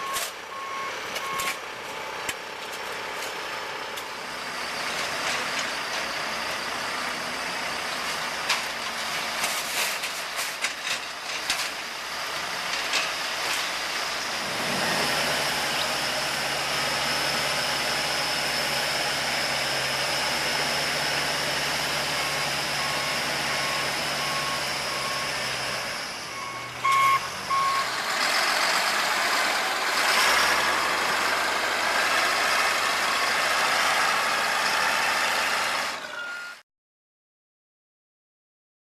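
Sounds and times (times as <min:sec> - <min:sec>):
reversing alarm beeping: 0:00.0 - 0:01.6, 0:21.5 - 0:28.0, 0:36.0 - 0:36.6
heavy trucks running: 0:00.0 - 0:36.6
paving machinery running: 0:00.0 - 0:36.6
steady engine hum: 0:13.6 - 0:35.9.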